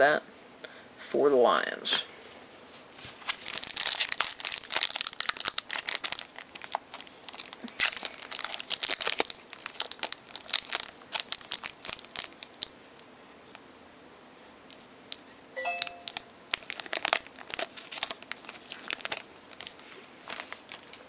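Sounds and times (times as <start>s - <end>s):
plastic wrapper crinkling and tearing: 3.0s - 13.1s, 15.8s - 21.0s.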